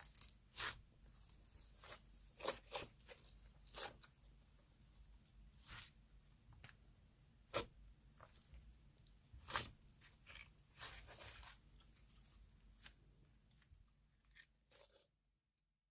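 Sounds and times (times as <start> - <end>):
hands squishing slime: 0.0 - 6.0, 7.4 - 12.9.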